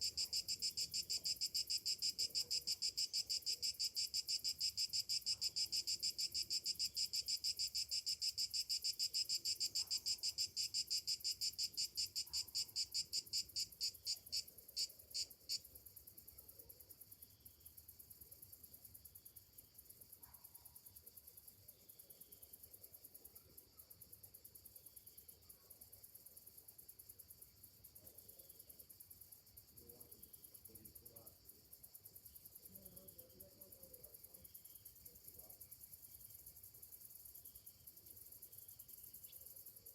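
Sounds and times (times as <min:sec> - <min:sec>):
cicada pulsing song: 0:00.0 - 0:15.6.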